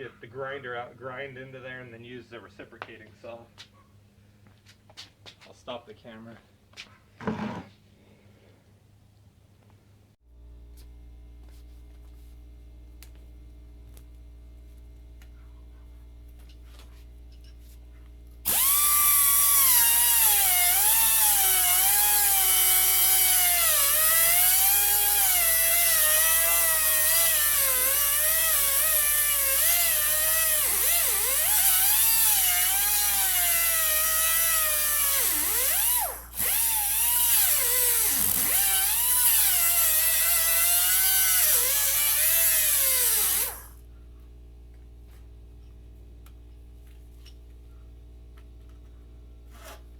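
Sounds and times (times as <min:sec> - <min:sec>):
angle grinder cutting steel: 0:18.5 - 0:43.7
faint steady hum: 0:43.5 - 0:49.9.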